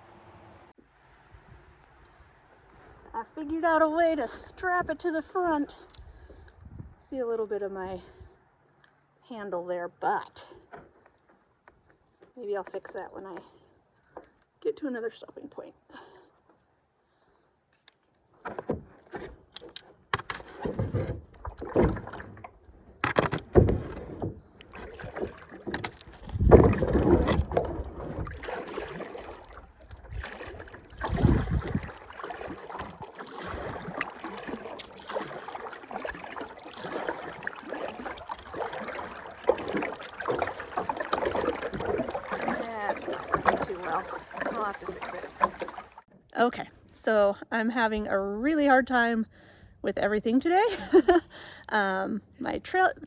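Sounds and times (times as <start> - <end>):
paddle strokes splashing water: 18.4 - 46.2.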